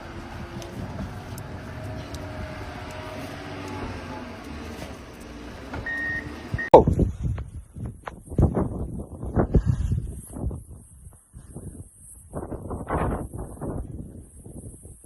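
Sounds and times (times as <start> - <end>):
vehicle engine running: 0.0 - 6.7
short high beeping tone: 5.9 - 6.8.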